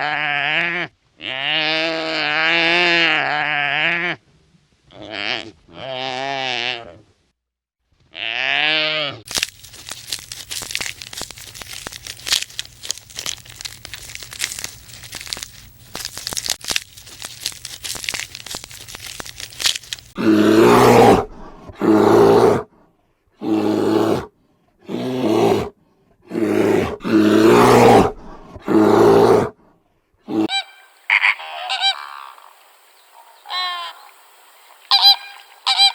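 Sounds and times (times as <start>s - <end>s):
crackling crunching noise: 9.3s - 22.6s, 26.6s - 29.5s.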